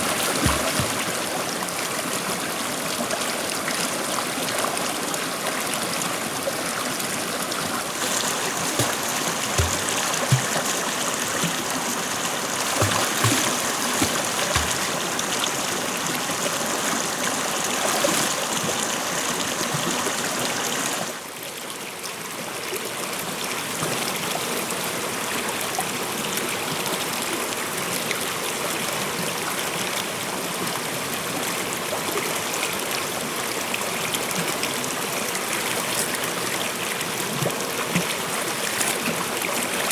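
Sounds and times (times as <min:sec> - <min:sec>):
stream water flowing: 0:00.0 - 0:21.2, 0:32.4 - 0:39.9.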